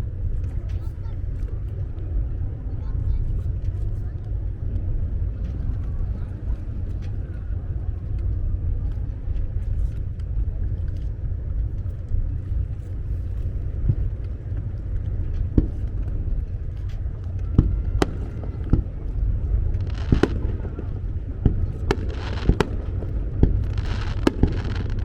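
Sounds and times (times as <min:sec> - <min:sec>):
fireworks rumble: 0:00.0 - 0:25.0
fireworks bangs: 0:15.5 - 0:16.2, 0:16.8 - 0:25.0.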